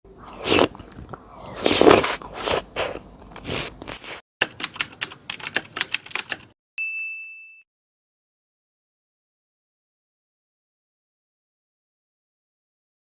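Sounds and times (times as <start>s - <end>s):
keyboard typing clicks: 4.4s - 6.6s.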